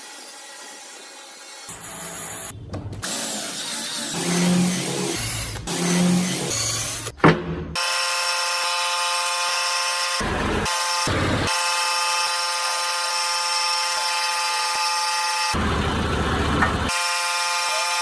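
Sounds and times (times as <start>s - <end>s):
power tool buzzing whine: 3.1s - 7.2s, 7.8s - 15.9s, 16.7s - 18.0s.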